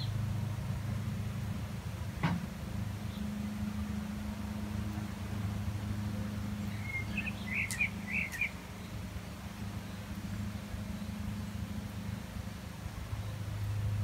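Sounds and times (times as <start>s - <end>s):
steady low hum: 0.0s - 14.0s
small bird chirping: 6.6s - 8.9s.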